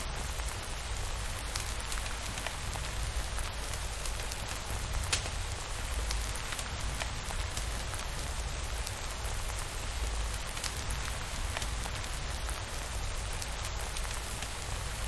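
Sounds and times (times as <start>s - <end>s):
steady rainfall: 0.0s - 15.0s.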